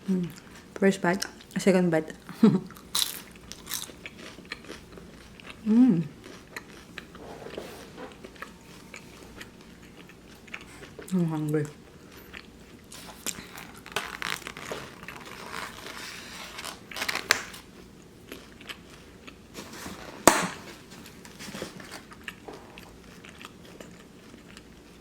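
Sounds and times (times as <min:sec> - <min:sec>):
person chewing with crunches: 0:02.7 - 0:25.0.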